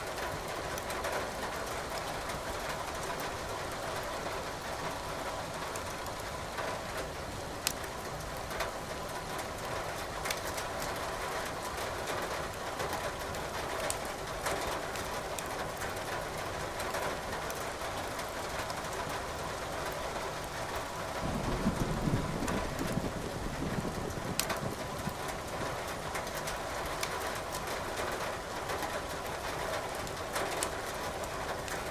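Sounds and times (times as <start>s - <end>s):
thunder rumble: 21.2s - 25.3s
firewood crackling: 24.3s - 27.7s.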